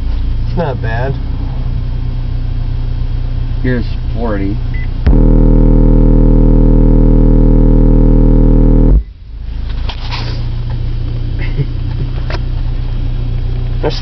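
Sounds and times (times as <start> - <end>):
deep test tone hum: 4.7 - 9.4.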